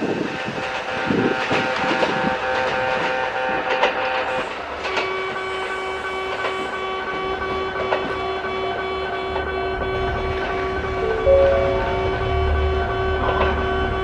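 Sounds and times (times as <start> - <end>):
electric train motor whine: 0.0 - 14.0
low rumble: 11.0 - 12.6.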